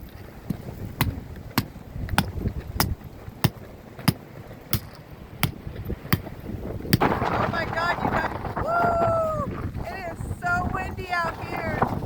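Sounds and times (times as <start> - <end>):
strong wind rumbling: 0.0 - 12.0
sharp knocks: 0.5 - 7.3.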